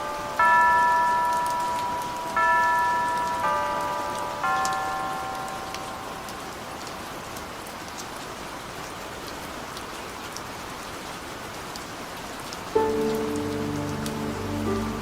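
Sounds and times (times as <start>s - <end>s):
steady rain hiss: 0.0s - 15.0s
raindrops ticking: 0.6s - 15.0s
soft music chord: 12.8s - 15.0s.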